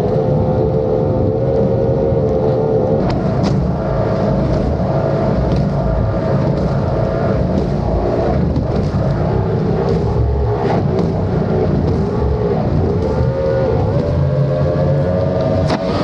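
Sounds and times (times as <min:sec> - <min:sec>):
rushing water: 0:00.0 - 0:16.0
speedboat engine running: 0:00.0 - 0:16.0.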